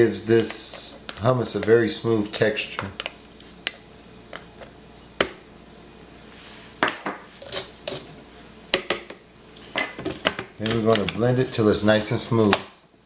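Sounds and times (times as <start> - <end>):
utensils and dishes clinking: 9.6 - 11.3.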